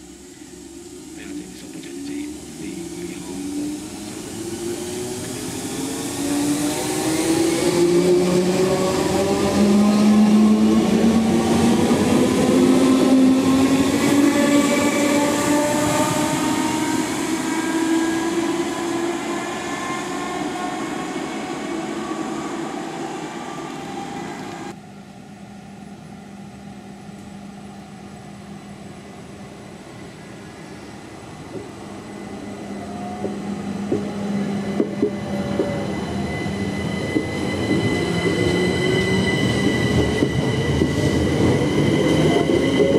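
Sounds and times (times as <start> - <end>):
train drive whine: 0.0 - 42.9.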